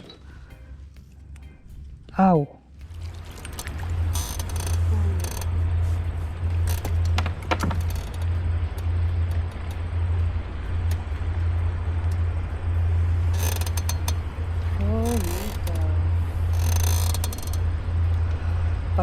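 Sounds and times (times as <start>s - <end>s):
fishing reel gears whirring: 2.8s - 19.0s
sharp reel clicks: 13.3s - 14.3s, 16.4s - 17.6s.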